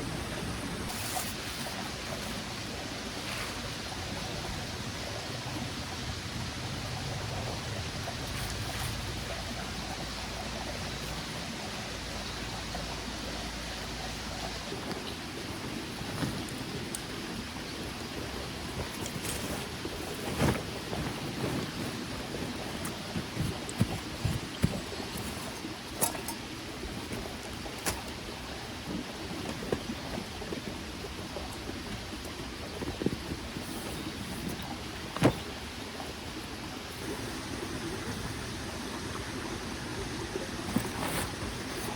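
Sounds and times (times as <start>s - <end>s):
mountain stream flowing: 0.0s - 41.9s.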